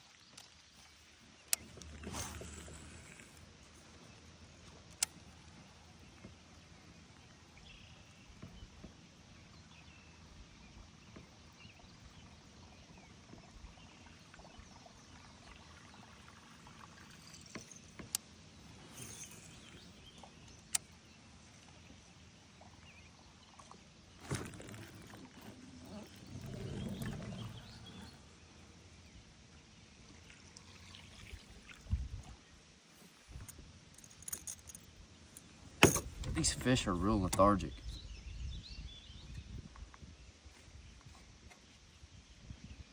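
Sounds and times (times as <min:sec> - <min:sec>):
water trickling: 0:13.4 - 0:21.8, 0:22.5 - 0:28.8, 0:30.1 - 0:32.5.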